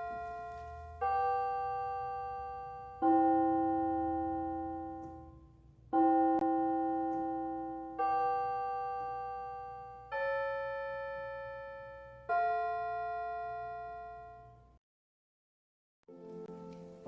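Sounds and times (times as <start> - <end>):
piano playing slow chords: 0.0 - 14.8, 16.1 - 17.0.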